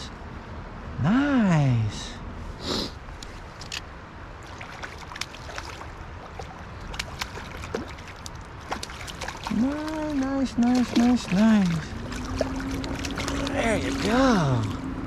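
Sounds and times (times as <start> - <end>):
shallow stream running: 3.0 - 15.0
small splashes and drips: 4.4 - 14.9.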